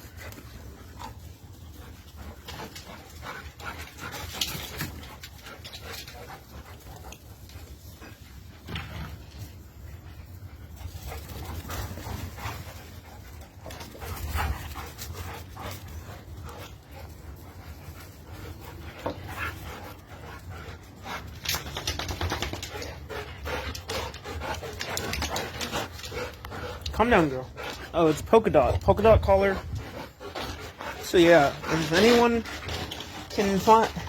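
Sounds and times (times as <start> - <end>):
dogs breathing: 0.0 - 34.0
dogs scuffling: 10.8 - 34.0.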